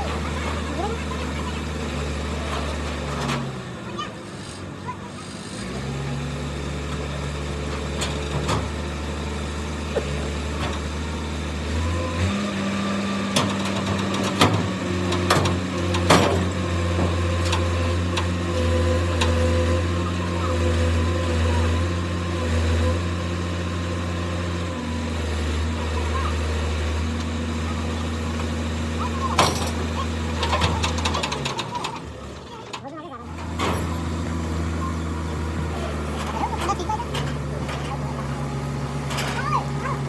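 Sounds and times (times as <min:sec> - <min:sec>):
engine humming: 0:00.0 - 0:40.0
sharp knocks and clicks: 0:13.3 - 0:18.4.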